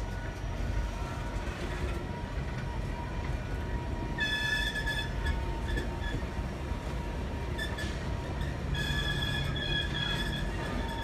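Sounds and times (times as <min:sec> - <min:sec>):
train wheels rumbling on rails: 0:00.0 - 0:11.0
high wheel squeal: 0:04.2 - 0:06.2, 0:07.5 - 0:11.0.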